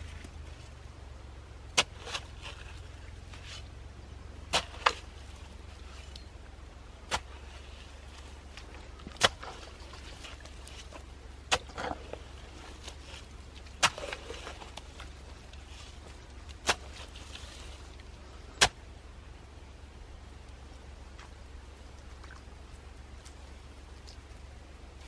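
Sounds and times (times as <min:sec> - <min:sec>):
low steady rumble: 0:00.0 - 0:25.0
digging tool striking soil: 0:01.7 - 0:03.6, 0:04.4 - 0:05.1, 0:07.0 - 0:07.8, 0:08.7 - 0:15.2, 0:16.5 - 0:17.6, 0:18.5 - 0:18.8.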